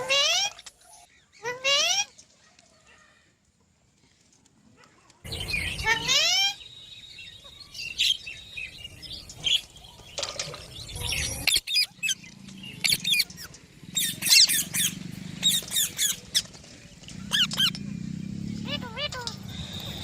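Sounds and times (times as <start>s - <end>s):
parrots chirping and squawking: 0.0s - 3.2s, 5.3s - 6.7s, 8.9s - 19.9s.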